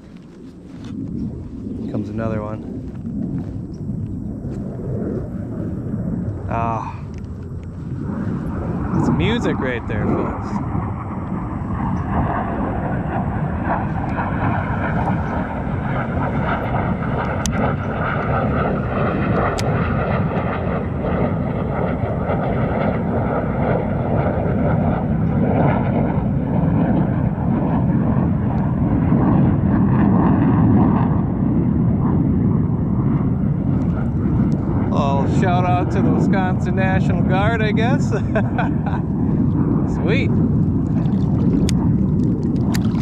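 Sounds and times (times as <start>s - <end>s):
fighter jet flying overhead: 0.0s - 43.0s.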